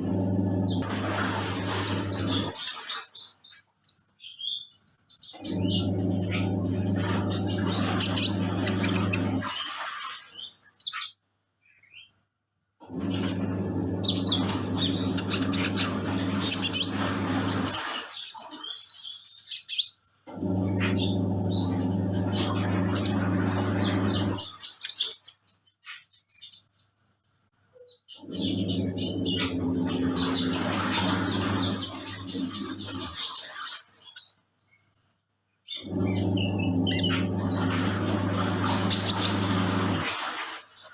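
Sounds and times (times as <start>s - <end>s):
washing machine motor humming: 0.0s - 3.2s, 5.3s - 10.2s, 12.8s - 18.6s, 20.3s - 24.8s, 28.2s - 33.6s, 35.8s - 40.8s.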